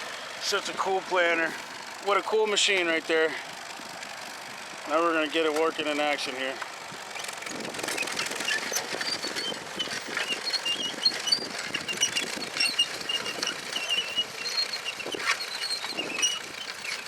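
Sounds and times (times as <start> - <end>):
planter mechanism clattering: 5.0 - 17.0.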